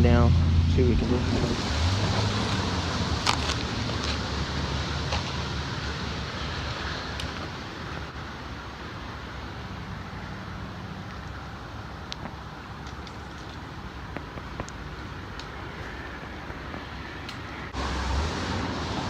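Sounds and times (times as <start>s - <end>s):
steady rain hiss: 1.0s - 19.0s
light ticks of raindrops: 11.0s - 17.5s.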